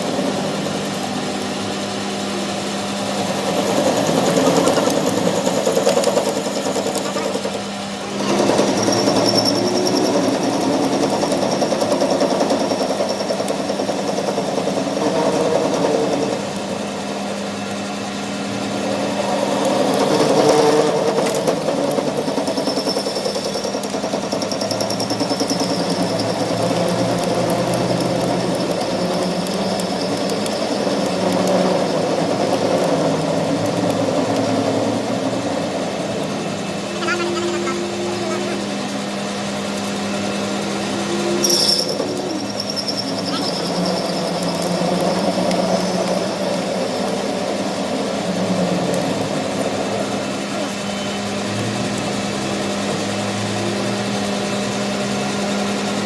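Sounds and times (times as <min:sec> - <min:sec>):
constant machine hum: 0:00.0 - 0:56.0
workshop machine chattering: 0:00.0 - 0:56.0.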